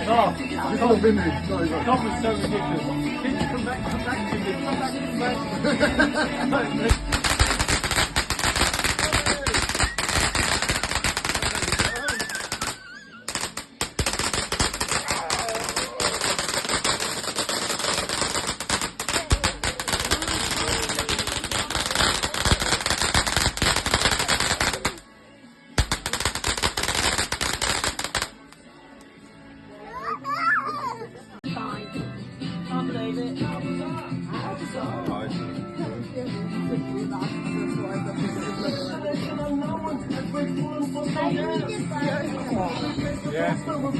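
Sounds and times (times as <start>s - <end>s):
fireworks crackling bangs: 6.8s - 25.0s, 25.8s - 28.4s.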